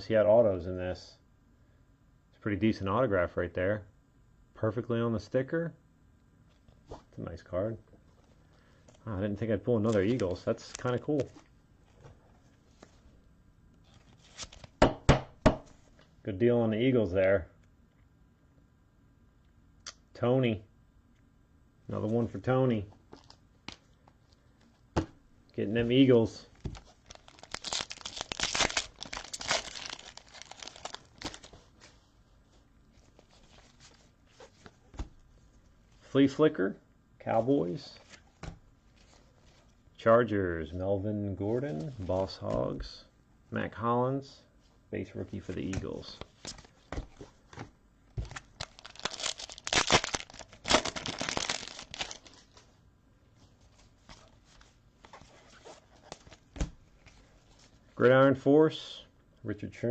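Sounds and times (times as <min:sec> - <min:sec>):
faint handling of wrapper: 0:26.5 - 0:32.1, 0:48.4 - 0:52.7
foil wrapper crinkling and tearing: 0:26.6 - 0:31.9, 0:48.3 - 0:52.6.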